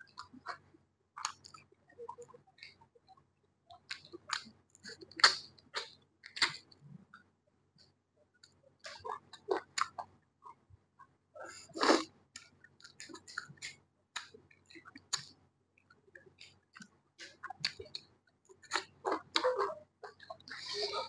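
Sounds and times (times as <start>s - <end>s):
person chewing food: 0.0s - 2.8s, 3.7s - 7.3s, 8.4s - 10.6s, 11.6s - 21.0s
wet lip smacks and clicks: 1.2s - 2.8s, 3.7s - 6.8s, 8.4s - 10.6s, 11.8s - 20.8s.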